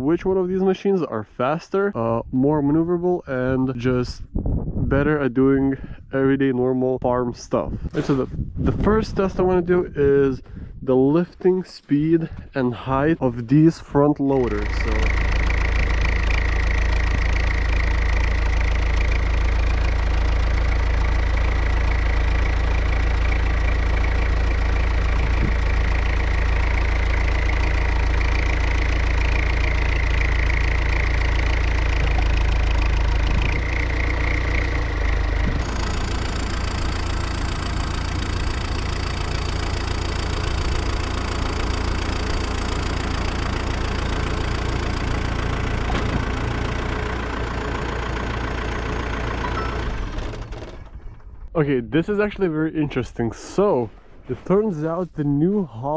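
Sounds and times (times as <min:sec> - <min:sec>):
diesel engine running: 0:12.2 - 0:55.0
wavering hydraulic whine: 0:31.9 - 0:39.2, 0:49.4 - 0:50.9.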